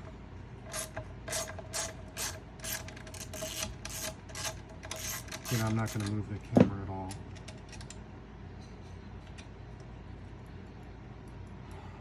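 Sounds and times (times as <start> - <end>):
ratcheting hand tool clicking: 0.7 - 6.1.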